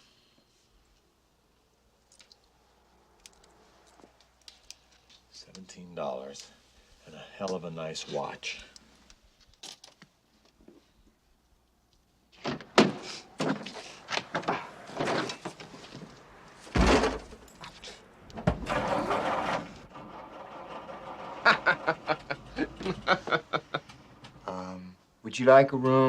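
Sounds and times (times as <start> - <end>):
knocks and thumps: 12.4 - 24.4.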